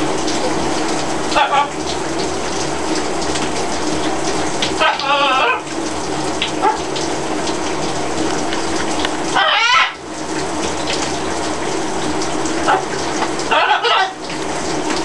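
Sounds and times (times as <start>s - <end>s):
shower water spraying: 0.0s - 15.0s
parrot call: 4.8s - 5.6s, 9.4s - 10.0s, 13.5s - 14.2s.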